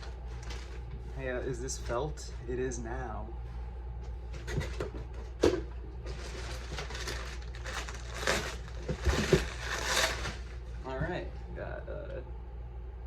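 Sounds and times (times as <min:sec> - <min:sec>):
wrapping paper rustling: 0:06.0 - 0:10.7.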